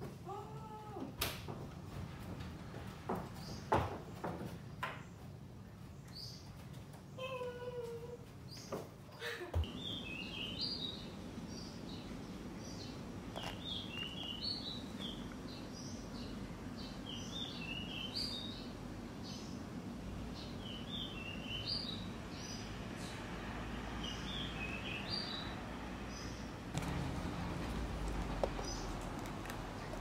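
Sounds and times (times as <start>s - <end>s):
low background hum: 0.0s - 30.0s
birds chirping: 9.6s - 23.3s, 24.0s - 30.0s.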